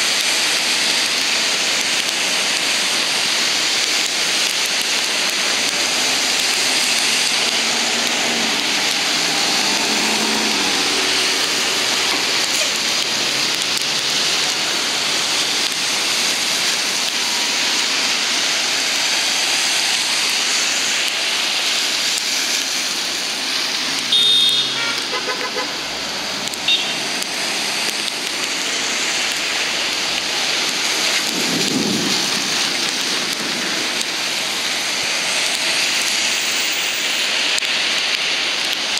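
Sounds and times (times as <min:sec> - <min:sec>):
heavy rain falling: 0:00.0 - 0:38.9
horn toot: 0:24.1 - 0:25.9, 0:26.7 - 0:27.0.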